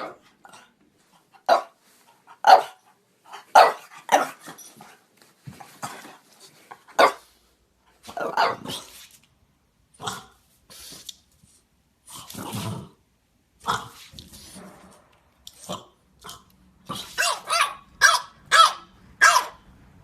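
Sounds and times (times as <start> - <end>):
dog barking: 1.5 - 1.8, 2.4 - 2.8, 3.5 - 4.4, 7.0 - 7.2, 8.2 - 8.8, 17.0 - 19.6.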